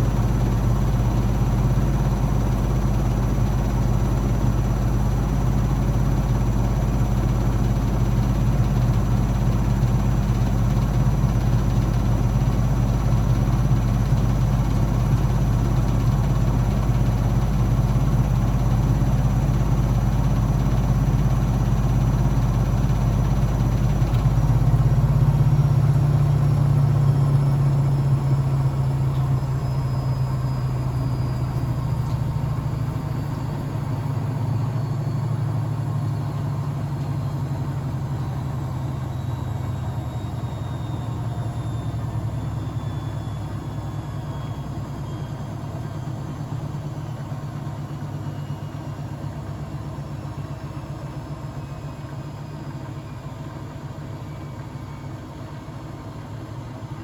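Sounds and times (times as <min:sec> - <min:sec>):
washing machine motor hum: 0:00.0 - 0:39.1.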